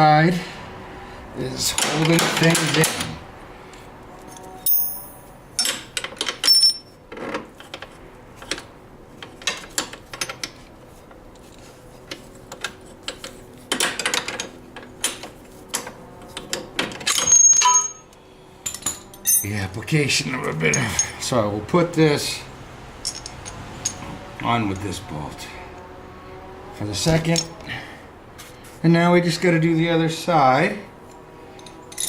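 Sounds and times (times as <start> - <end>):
metal tools clinking: 4.3 - 7.0, 17.0 - 19.8, 20.4 - 21.3, 23.0 - 24.1, 31.1 - 32.0.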